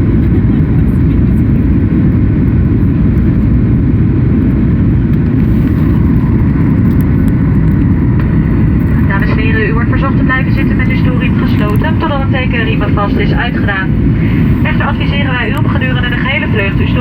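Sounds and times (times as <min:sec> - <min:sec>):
airliner cabin engine roar: 0:00.0 - 0:17.0
faint steady whine: 0:00.0 - 0:17.0
rushing air: 0:03.0 - 0:09.2, 0:11.9 - 0:17.0.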